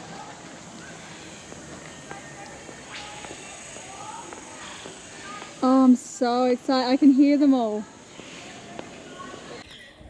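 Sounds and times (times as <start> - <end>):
distant bird calls: 0.0 - 5.9, 7.9 - 10.0
steady background hiss: 0.0 - 10.0.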